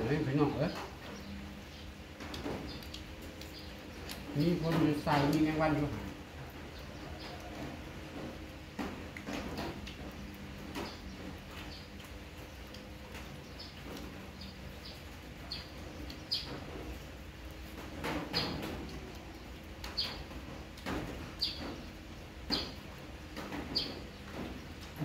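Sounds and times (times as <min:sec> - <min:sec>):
small bird chirping: 0:01.0 - 0:04.7, 0:10.7 - 0:16.8, 0:19.3 - 0:20.3, 0:21.4 - 0:21.9.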